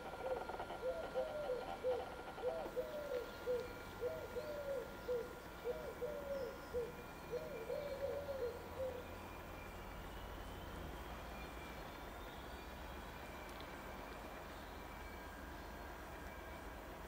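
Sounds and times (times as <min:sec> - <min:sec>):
bird calling: 0:00.0 - 0:09.6.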